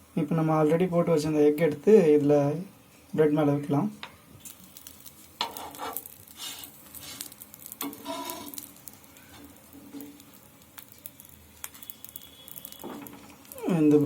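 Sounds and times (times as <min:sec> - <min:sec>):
bread sizzling in a frying pan: 0:04.2 - 0:14.0
spatula scraping and clinking: 0:05.4 - 0:08.7.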